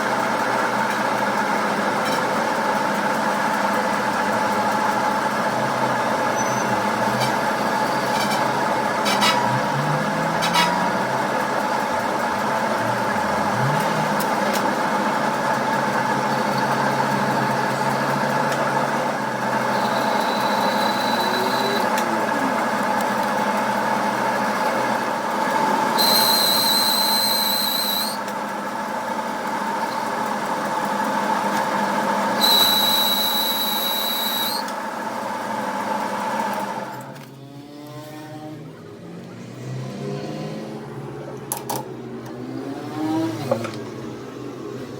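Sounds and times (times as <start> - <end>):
machine whining: 4.4 - 28.4, 31.4 - 34.9
high-pitched squeal: 19.6 - 22.7, 26.0 - 28.2, 32.4 - 34.7.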